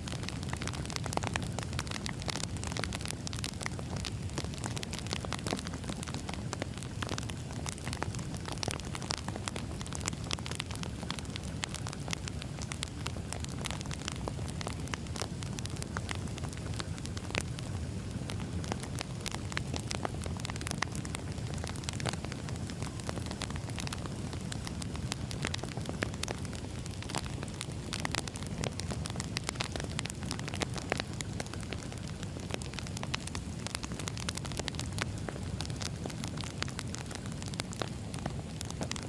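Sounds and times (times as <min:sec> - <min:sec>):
fire rumbling: 0:00.0 - 0:39.0
logs crackling and popping: 0:00.0 - 0:39.0.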